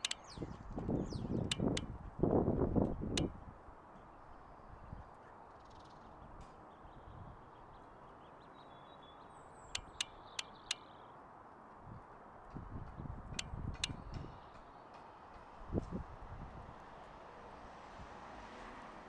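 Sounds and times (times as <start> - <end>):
sharp clicks: 0.0 - 0.2, 1.5 - 1.8, 9.8 - 10.8
faint high bird chirps: 8.5 - 11.1.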